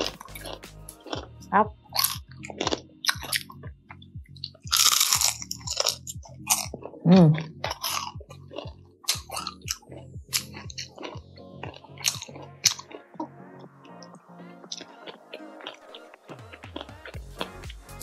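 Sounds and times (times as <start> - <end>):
crunching crispy chicken skin: 4.5 - 6.8, 7.7 - 13.1
person humming mm: 7.0 - 7.6.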